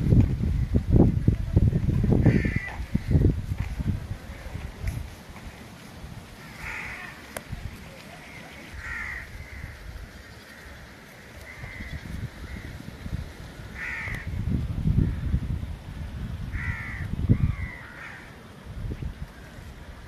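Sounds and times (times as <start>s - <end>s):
wind rumble on microphone: 0.0s - 20.0s
crow-like caws: 2.2s - 3.3s, 6.4s - 7.3s, 8.3s - 10.8s, 11.4s - 12.8s, 13.6s - 14.4s, 16.5s - 18.4s.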